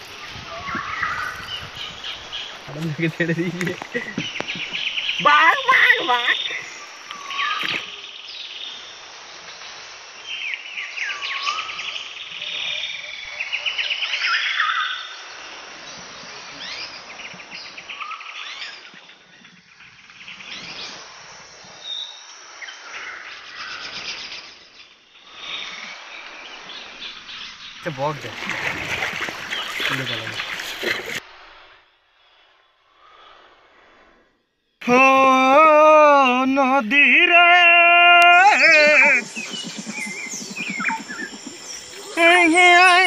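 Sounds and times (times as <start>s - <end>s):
birds calling and chirping: 0.0s - 8.0s, 26.8s - 31.2s, 38.2s - 43.0s
rapid trilled bird calls: 0.0s - 8.0s, 38.2s - 43.0s.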